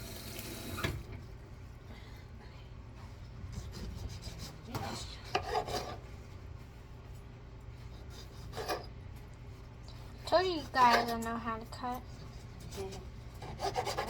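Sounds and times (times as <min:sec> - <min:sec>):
knife cutting on cutting board: 0:12.6 - 0:14.0.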